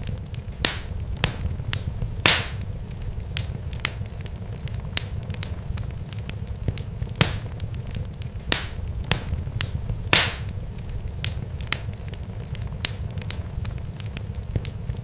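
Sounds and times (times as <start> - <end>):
sharp crackles and pops: 0.0 - 15.0
steady low rumble: 0.0 - 15.0
hissing pop: 0.6 - 2.7, 7.2 - 7.5, 8.5 - 9.3, 10.1 - 10.5.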